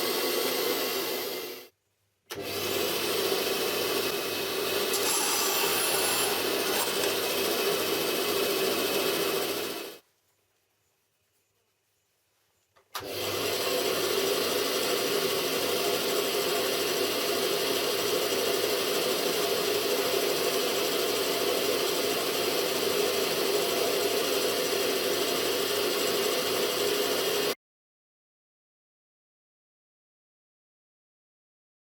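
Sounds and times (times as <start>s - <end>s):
band saw cutting metal: 4.0s - 10.0s.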